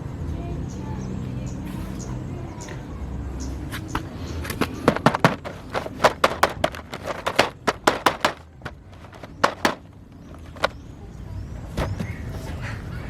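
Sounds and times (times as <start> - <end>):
plastic toy pieces clicking: 4.6 - 10.7.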